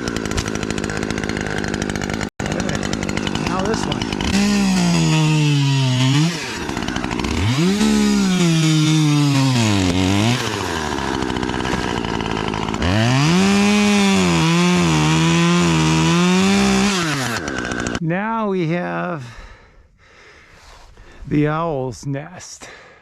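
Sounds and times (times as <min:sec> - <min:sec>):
chainsaw cutting wood: 0:00.0 - 0:18.0.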